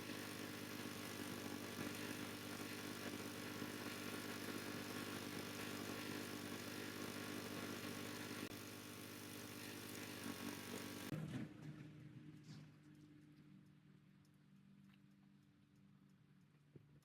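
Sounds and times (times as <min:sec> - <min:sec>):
engine running steadily: 0:00.0 - 0:13.3.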